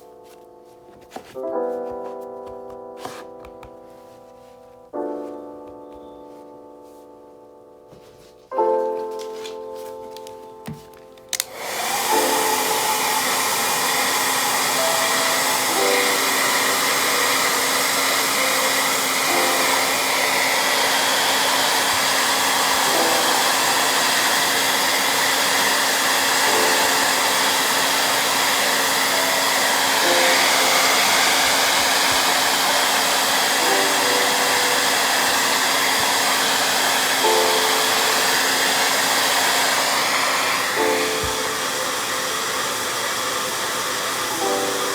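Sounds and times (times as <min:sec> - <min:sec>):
hair dryer blowing: 0:00.0 - 0:05.4, 0:07.9 - 0:44.9.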